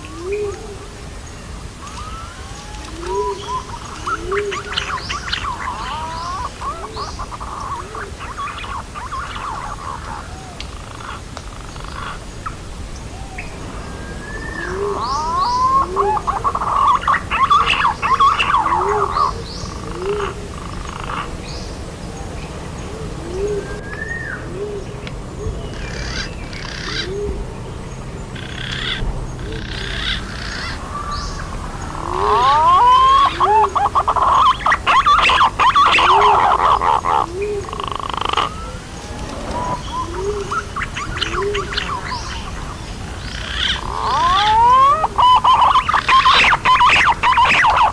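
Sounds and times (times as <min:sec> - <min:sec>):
rising whistles and chattering: 0:01.8 - 0:10.7, 0:13.2 - 0:19.3, 0:31.4 - 0:42.7, 0:43.6 - 0:47.9
pigeon calls: 0:01.8 - 0:12.6, 0:14.4 - 0:21.3, 0:28.4 - 0:47.9.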